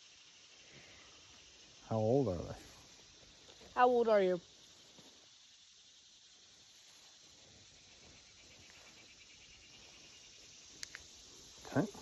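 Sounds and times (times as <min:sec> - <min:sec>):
crickets chirping faintly: 0:00.0 - 0:12.0
small click: 0:10.8 - 0:11.1.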